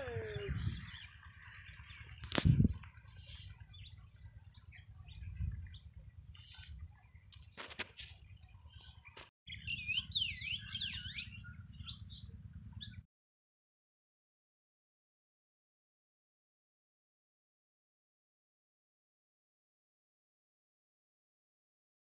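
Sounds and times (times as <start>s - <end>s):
small birds chirping: 0.0s - 13.0s
wind rumble on microphone: 0.0s - 13.0s
whistled bird calls: 8.8s - 13.0s.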